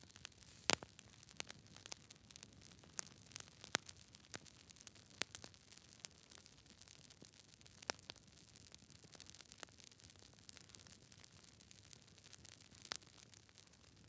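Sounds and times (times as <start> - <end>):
faint steady hiss: 0.0 - 1.6
wood fire crackling: 0.0 - 14.0.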